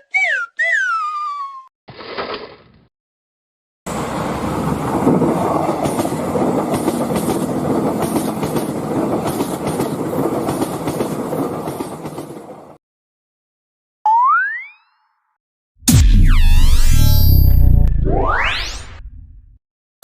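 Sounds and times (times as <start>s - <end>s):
train wagons rumbling: 3.9s - 12.5s.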